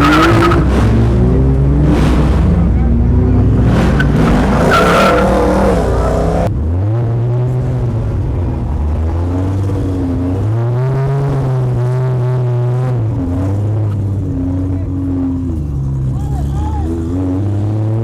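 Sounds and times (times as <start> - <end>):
car engine revving: 0.0 - 16.0
tyres squealing: 3.8 - 6.5.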